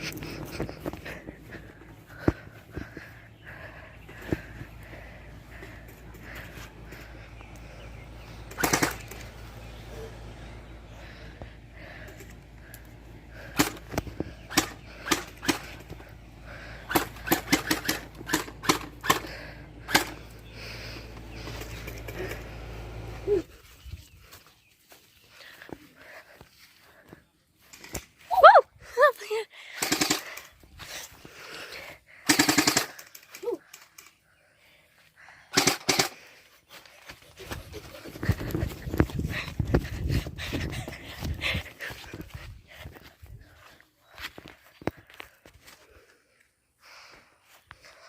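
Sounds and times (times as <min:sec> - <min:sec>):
gel blaster firing full auto: 0:08.5 - 0:09.2, 0:32.3 - 0:33.0.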